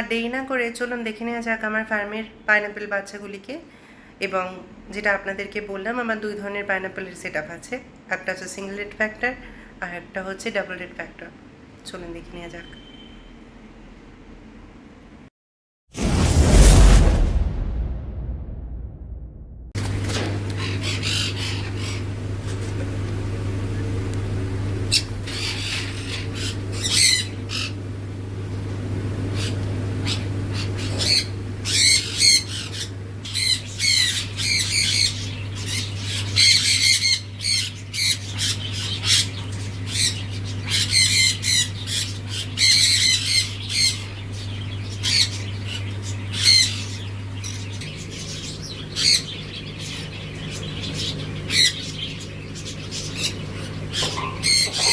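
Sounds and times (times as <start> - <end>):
steady low hum: 16.1 - 54.9
parrots squawking: 20.5 - 22.6, 24.9 - 27.8, 29.2 - 54.9.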